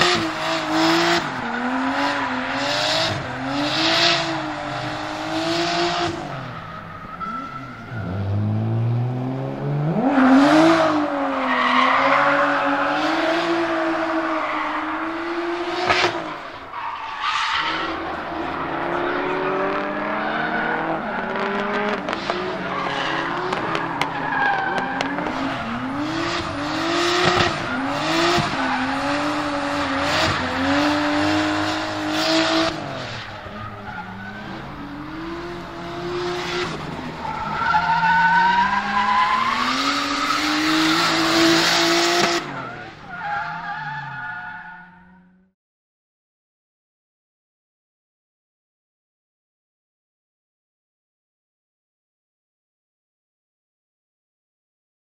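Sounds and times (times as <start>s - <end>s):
car engine revving: 0.0s - 16.9s, 17.6s - 43.9s
tyre squeal: 6.1s - 8.4s.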